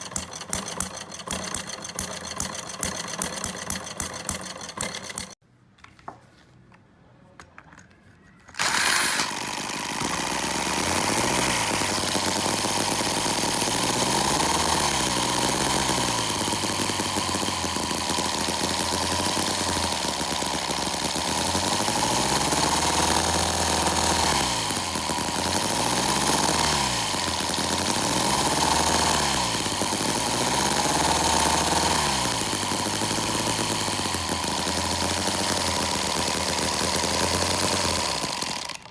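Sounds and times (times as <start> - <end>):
small model engine running: 0.0 - 5.4, 8.6 - 38.9.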